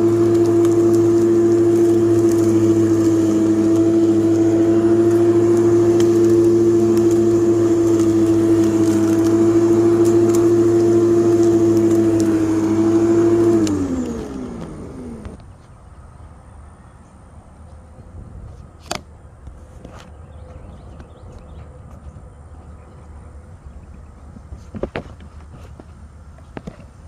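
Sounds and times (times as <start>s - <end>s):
electric lawn mower humming: 0.0s - 15.8s.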